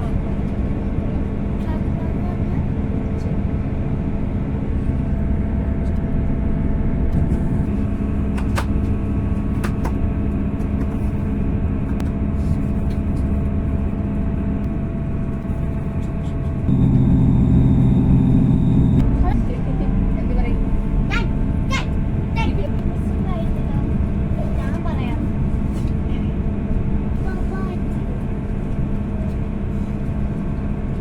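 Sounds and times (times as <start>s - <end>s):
train drive hum: 0.0s - 31.0s
train wheels rumbling on rail: 18.9s - 31.0s.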